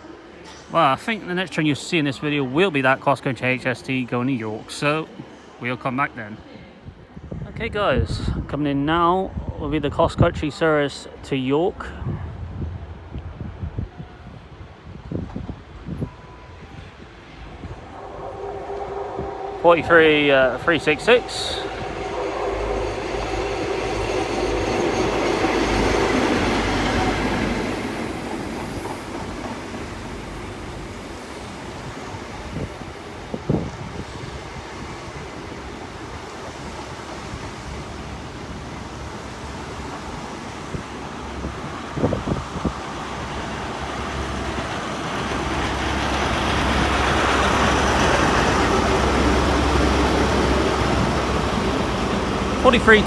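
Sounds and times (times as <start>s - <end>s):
diesel train passing: 0.0s - 53.0s.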